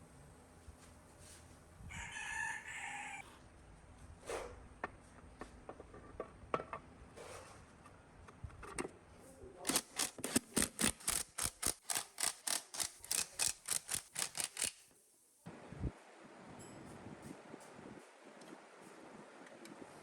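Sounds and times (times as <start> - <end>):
hand tool striking metal: 9.7 - 14.8.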